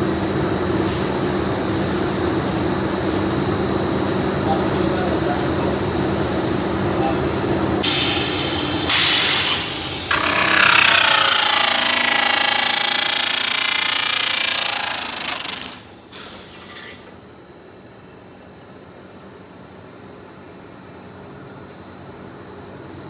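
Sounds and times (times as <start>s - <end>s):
loud power tool noise: 7.8s - 17.1s.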